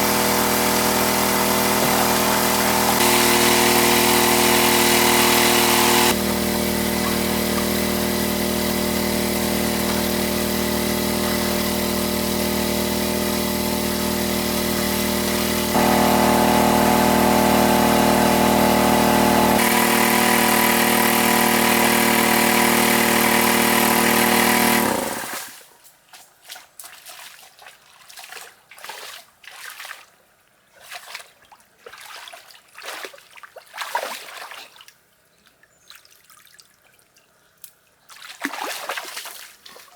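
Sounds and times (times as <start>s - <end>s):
small engine running: 0.0s - 25.6s.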